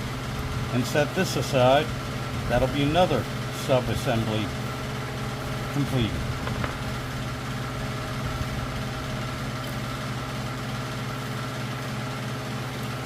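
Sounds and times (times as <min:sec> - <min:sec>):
electric fan humming: 0:00.0 - 0:13.0.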